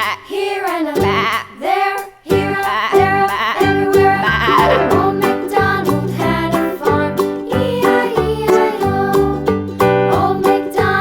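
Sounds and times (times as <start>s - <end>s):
cheerful ukulele music: 2.3s - 11.0s.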